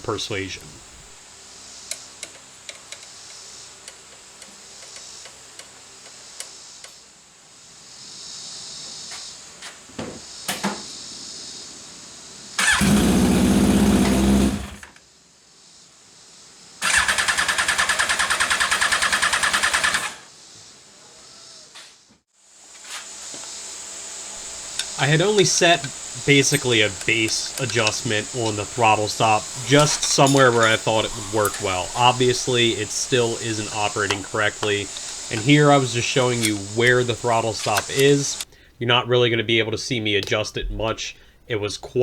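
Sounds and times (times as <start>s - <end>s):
engine starter cranking: 0.0s - 1.2s, 12.6s - 14.9s, 16.8s - 20.3s, 24.4s - 38.6s.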